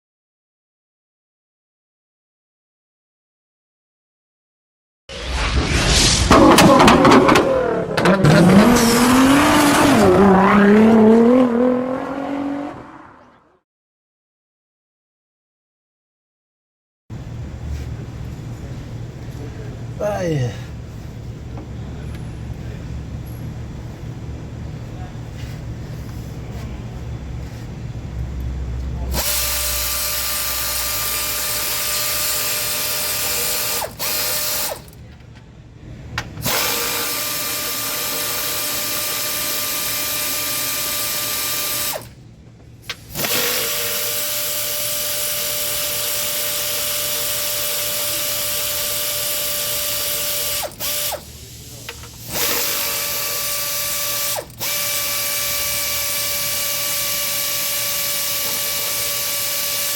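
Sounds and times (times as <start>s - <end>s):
power tool running: 6.3s - 11.8s, 29.0s - 35.0s, 36.4s - 42.2s, 42.9s - 59.9s.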